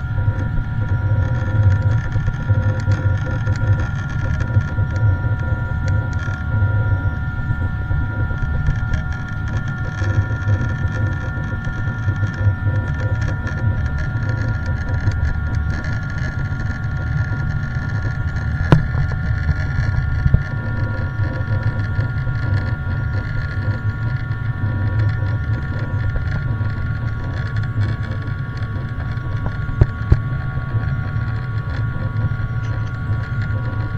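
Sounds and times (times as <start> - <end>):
jet engine rumble and whine: 0.0 - 33.9.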